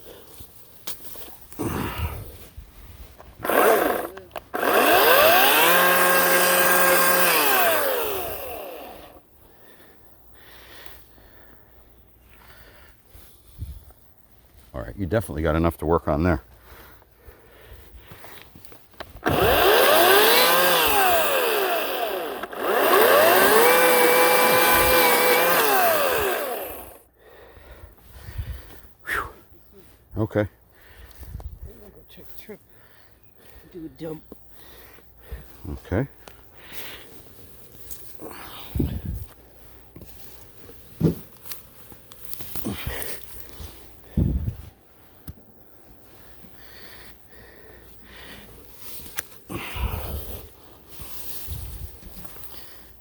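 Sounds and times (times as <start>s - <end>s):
electric chainsaw motor: 3.4s - 9.2s, 19.2s - 27.1s.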